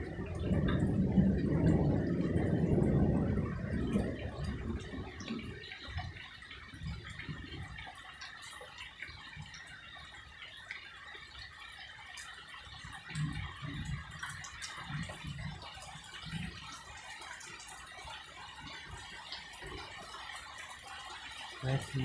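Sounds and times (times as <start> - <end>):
rain hiss: 0.0 - 22.0
water drips: 0.0 - 22.0
faint low murmurs: 21.6 - 22.0.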